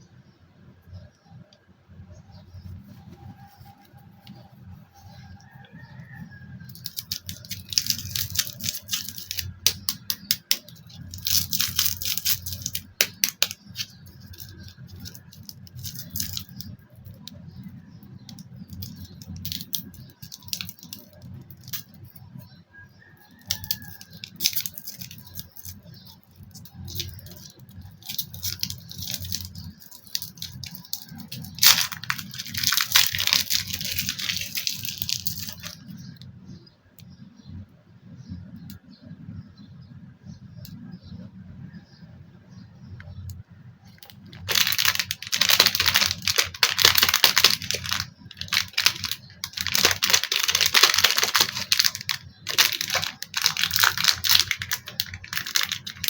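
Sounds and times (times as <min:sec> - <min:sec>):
packaging rustling and tearing: 0:06.6 - 0:22.4, 0:23.3 - 0:36.1, 0:44.0 - 0:56.0
sharp clicks and rattles: 0:06.6 - 0:22.6, 0:23.2 - 0:36.3, 0:43.0 - 0:56.0.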